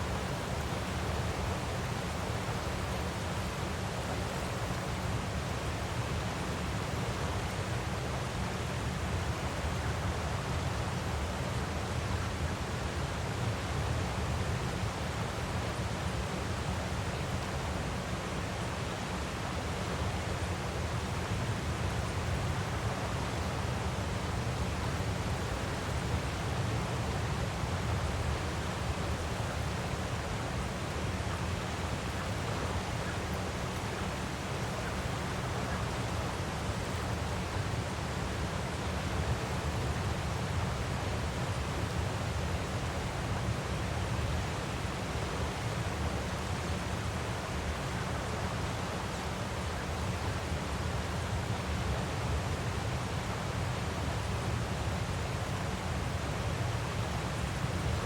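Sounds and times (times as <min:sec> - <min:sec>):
waterfall rushing: 0:20.9 - 0:42.9.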